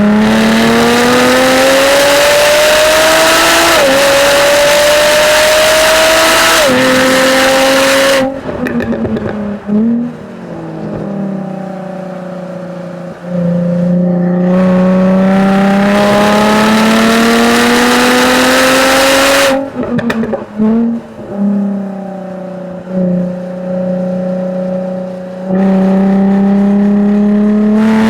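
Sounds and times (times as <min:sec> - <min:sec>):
car exhaust under full throttle: 0:00.0 - 0:28.0
exhaust crackles and pops: 0:08.2 - 0:10.0, 0:19.5 - 0:21.5.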